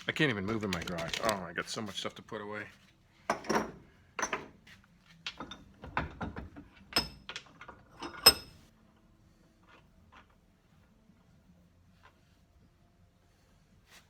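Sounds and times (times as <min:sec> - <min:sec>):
tools knocking on workbench: 0:05.4 - 0:07.4.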